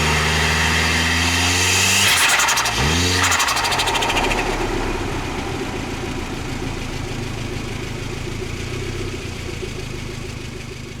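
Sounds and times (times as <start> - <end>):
car engine idling: 2.3 - 11.0.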